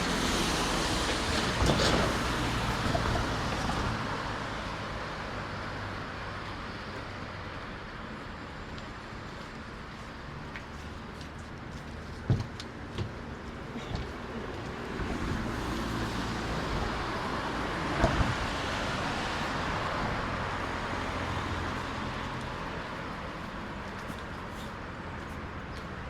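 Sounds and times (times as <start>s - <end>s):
car passing by: 0.0s - 6.5s, 14.3s - 23.3s.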